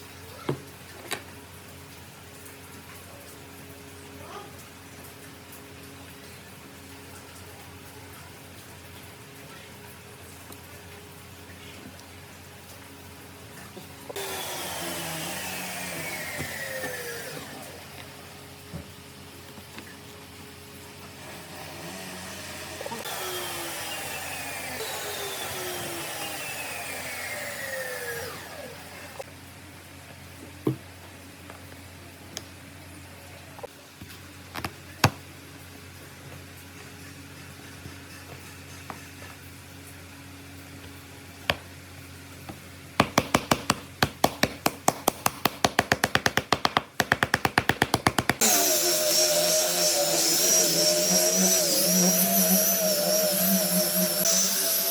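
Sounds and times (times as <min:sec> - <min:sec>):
power tool working wood: 0:14.1 - 0:18.2, 0:21.2 - 0:29.2, 0:43.1 - 0:54.9
rapid knocks on wood: 0:43.0 - 0:48.4.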